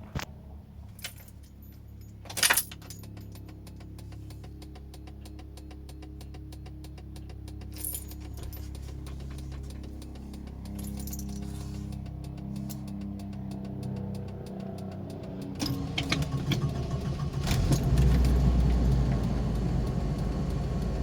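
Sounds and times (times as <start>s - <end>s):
petrol engine cranking and idling: 1.3s - 21.0s
fast even engine ticking: 8.9s - 21.0s.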